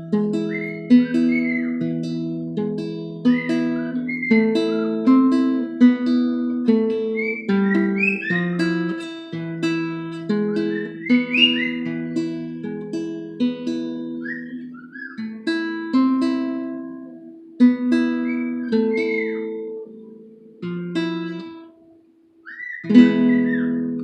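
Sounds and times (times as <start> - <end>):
fingerstyle acoustic guitar: 0.0 - 24.0
bird whistling: 0.4 - 1.9, 3.3 - 5.3, 7.1 - 9.0, 10.3 - 12.3, 14.2 - 15.3, 18.2 - 19.8, 22.4 - 24.0.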